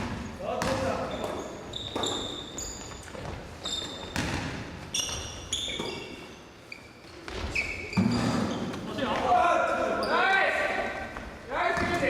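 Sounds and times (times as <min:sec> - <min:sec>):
ball bouncing on gym floor: 0:00.0 - 0:06.1, 0:11.2 - 0:12.0
sneakers squeaking: 0:00.0 - 0:12.0.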